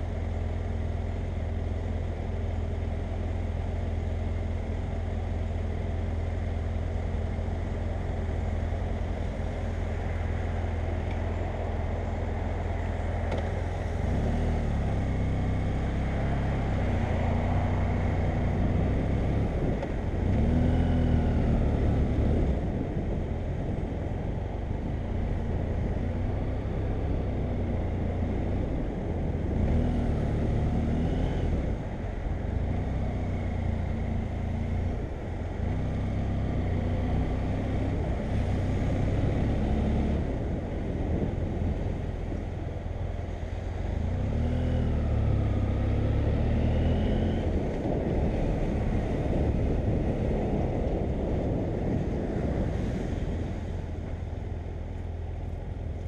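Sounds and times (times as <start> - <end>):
wind rush: 47.3 - 55.9.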